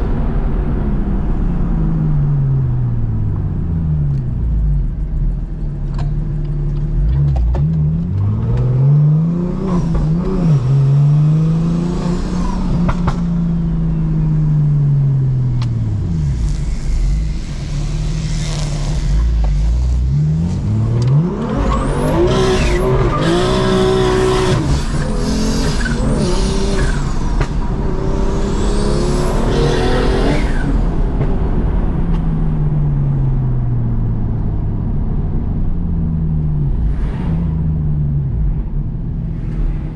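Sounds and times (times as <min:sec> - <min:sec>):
car engine revving through gears: 0:06.7 - 0:14.2, 0:15.0 - 0:32.4.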